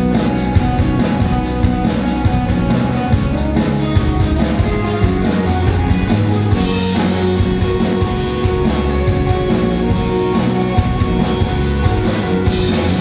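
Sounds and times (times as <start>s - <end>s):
rock band playing: 0.0s - 13.0s.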